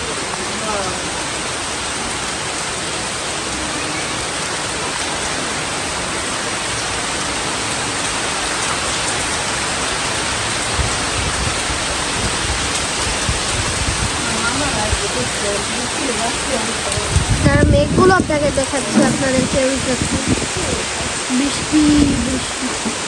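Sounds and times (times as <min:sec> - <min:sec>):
heavy rain: 0:00.0 - 0:23.0
low bumps: 0:16.4 - 0:22.5.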